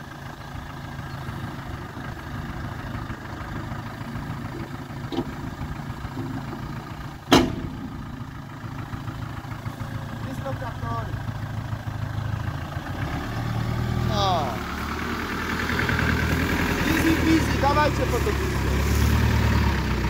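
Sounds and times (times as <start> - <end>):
car engine running: 0.0 - 20.0
loud sharp knock: 7.3 - 7.8.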